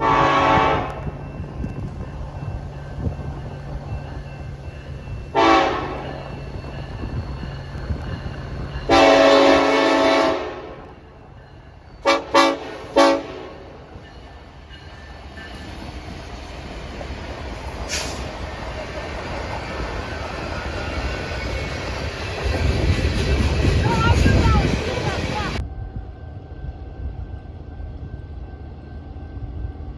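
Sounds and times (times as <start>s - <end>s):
locomotive air horn blasts: 0.0s - 1.0s, 5.4s - 6.0s, 8.9s - 10.9s, 12.0s - 13.8s
train rumble: 0.0s - 29.9s.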